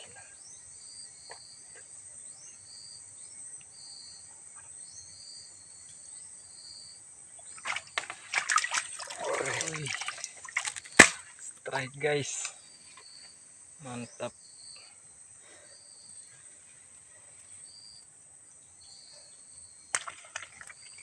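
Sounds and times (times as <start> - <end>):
insects chirping: 0.0 - 21.0
fish splashing in water: 7.4 - 11.4, 20.0 - 21.0.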